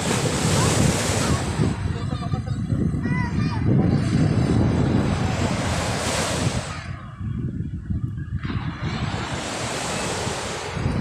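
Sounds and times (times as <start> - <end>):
sea waves washing onto shore: 0.0 - 7.3, 8.4 - 11.0
wind rumbling on microphone: 0.0 - 11.0.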